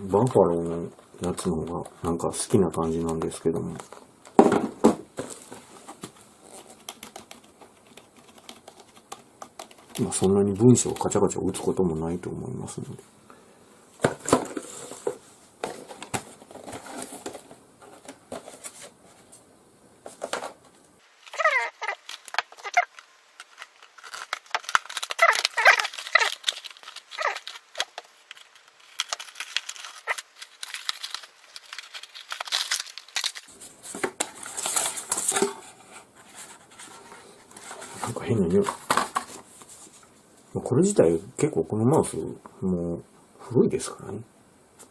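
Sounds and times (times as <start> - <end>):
packaging crinkling and tearing: 5.2 - 11.2, 14.2 - 18.9, 21.1 - 36.9.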